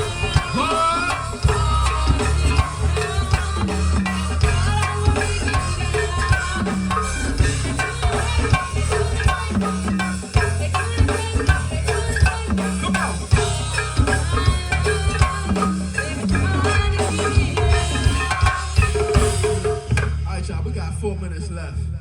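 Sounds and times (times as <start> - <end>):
live band instrumental groove: 0.0 - 20.2
drums and percussion: 0.0 - 20.7
bass line: 0.0 - 22.0.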